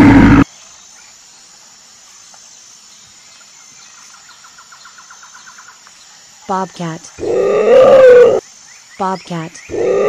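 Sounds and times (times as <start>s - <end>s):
faint outdoor hiss: 0.4s - 10.0s.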